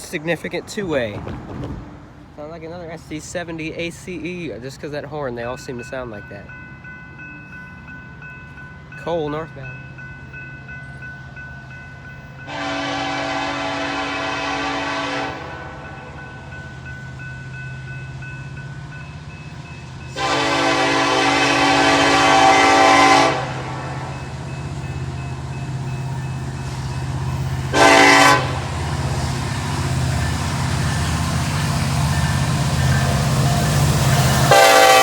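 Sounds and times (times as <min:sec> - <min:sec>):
diesel locomotive engine rumble: 0:00.0 - 0:35.0
train horn blasts: 0:12.5 - 0:15.9, 0:20.1 - 0:24.0, 0:27.7 - 0:28.8, 0:34.4 - 0:35.0.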